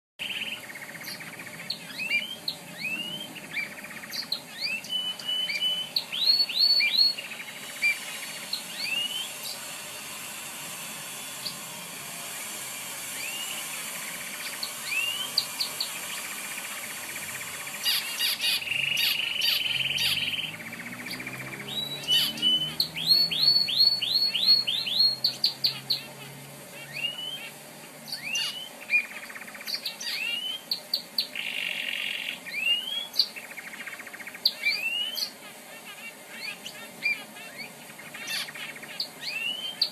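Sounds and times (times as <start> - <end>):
canary singing: 0.2 - 39.9.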